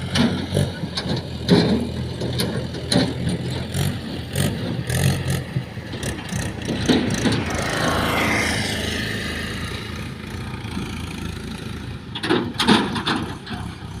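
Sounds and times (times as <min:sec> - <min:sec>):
heavy diesel engine running: 0:00.0 - 0:14.0
knocks and clatter: 0:00.1 - 0:07.8, 0:12.0 - 0:14.0.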